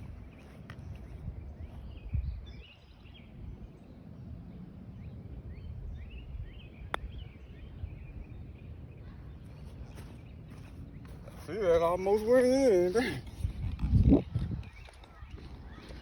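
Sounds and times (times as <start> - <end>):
wind rumble on microphone: 0.0 - 11.5, 13.0 - 16.0
small birds chirping: 5.0 - 12.0.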